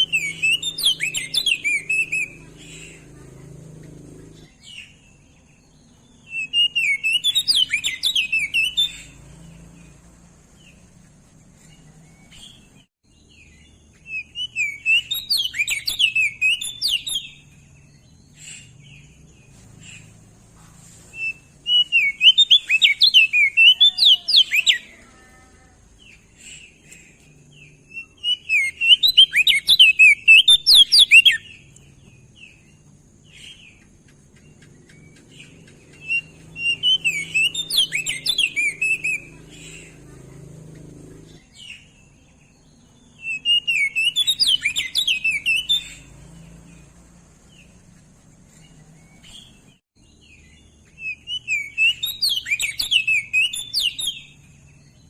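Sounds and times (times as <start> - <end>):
bird warbling chirps: 0.0 - 25.3, 26.0 - 42.2, 43.0 - 55.0.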